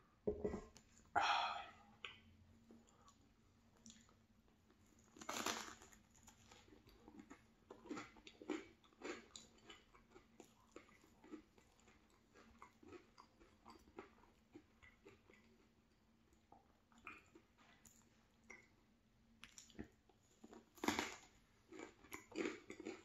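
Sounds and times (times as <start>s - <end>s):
person chewing: 5.0s - 18.7s, 19.4s - 23.0s.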